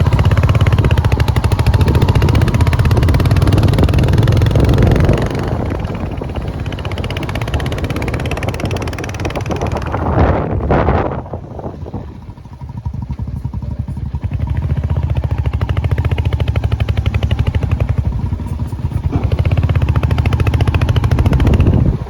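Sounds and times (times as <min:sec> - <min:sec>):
wind on microphone: 0:00.0 - 0:13.0, 0:19.1 - 0:22.0
motorcycle engine running: 0:00.0 - 0:22.0.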